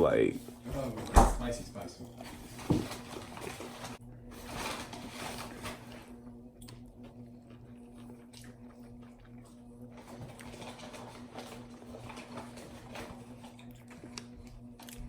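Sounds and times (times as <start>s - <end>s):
person chewing food: 6.6s - 15.0s.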